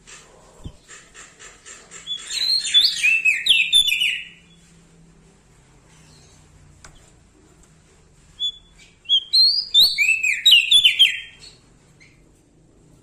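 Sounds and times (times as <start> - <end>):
bird whistling: 2.1 - 4.5, 8.4 - 11.6.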